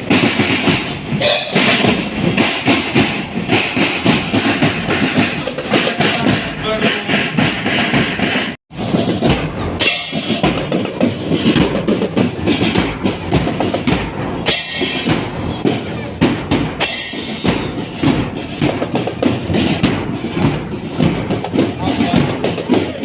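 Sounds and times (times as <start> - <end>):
snare and bass drums: 0.0 - 23.0
cymbal crashes: 9.8 - 10.6, 14.4 - 15.2.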